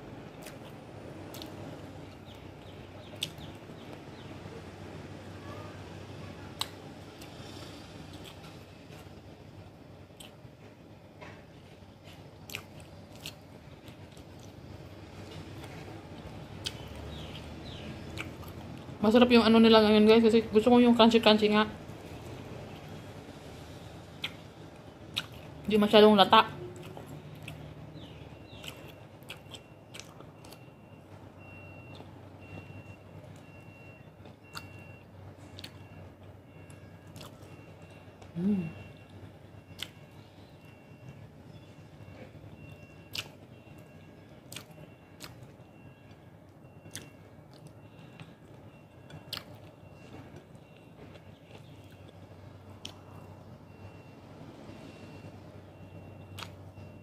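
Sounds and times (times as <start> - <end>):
close-up chewing with crunches: 0.3 - 4.0, 6.5 - 9.2, 10.0 - 10.6, 12.0 - 18.9, 24.2 - 25.7, 26.7 - 30.7, 34.2 - 38.4, 43.1 - 46.2, 46.8 - 53.3, 56.2 - 56.6
mouth clicks: 3.1 - 3.6, 24.2 - 24.4, 34.5 - 34.8, 43.1 - 43.4, 44.5 - 45.5, 46.8 - 48.3, 56.2 - 56.6
faint high beeps: 28.2 - 52.2, 53.0 - 57.0.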